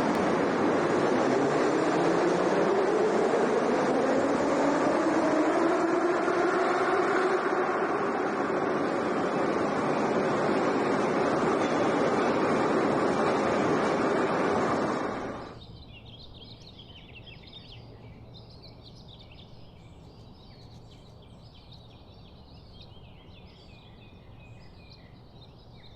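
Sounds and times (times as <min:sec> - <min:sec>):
loud rushing noise: 0:00.0 - 0:15.6.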